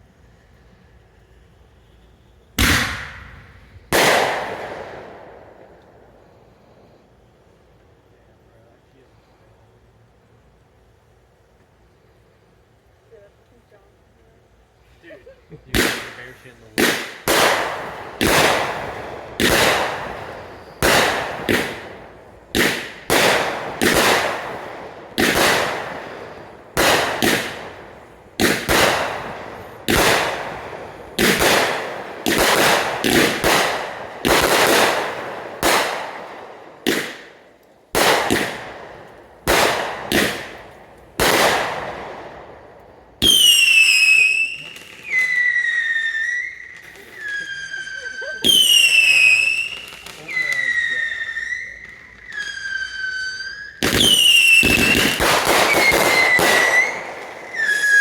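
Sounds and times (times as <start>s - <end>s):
fireworks bangs echoing: 2.6s - 7.0s, 15.6s - 58.0s
firework whistles falling in pitch: 43.2s - 58.0s.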